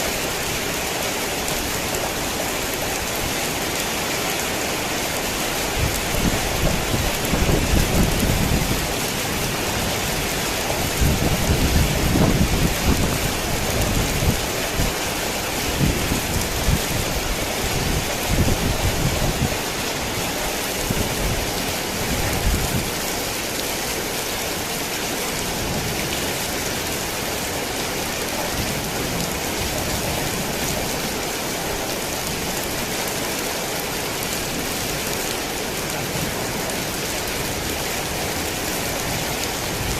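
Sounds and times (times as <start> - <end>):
heavy rain: 0.0 - 39.9
thunder rumbling: 5.8 - 14.6.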